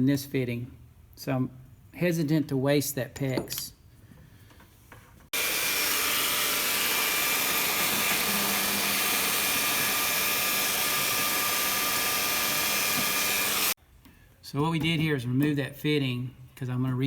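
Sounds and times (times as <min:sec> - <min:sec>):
heat gun blowing: 0:05.3 - 0:13.8.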